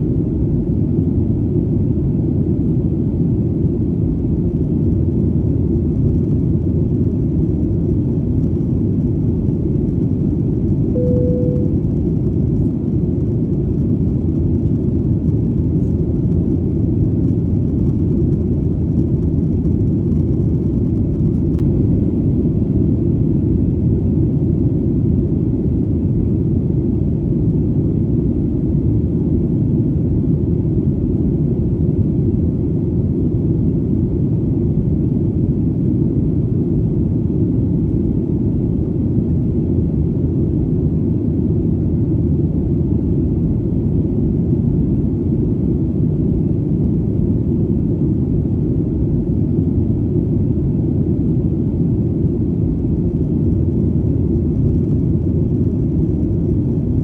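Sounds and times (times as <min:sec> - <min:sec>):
airplane drone in flight: 0:00.0 - 0:57.0
brief single tone: 0:10.9 - 0:12.2.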